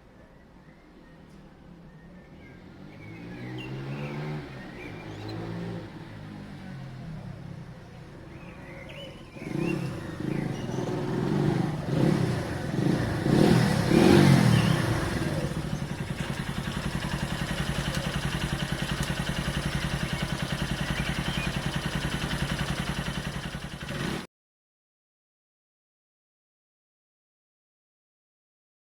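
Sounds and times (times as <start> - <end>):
motorcycle engine revving and idling: 2.0 - 24.3.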